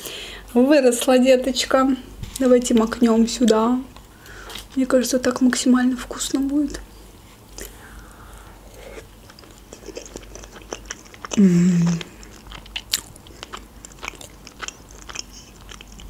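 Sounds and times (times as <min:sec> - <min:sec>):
person chewing with wet clicks: 0:02.3 - 0:04.8, 0:07.5 - 0:07.8, 0:09.0 - 0:16.0
hummed mmm: 0:09.9 - 0:12.4.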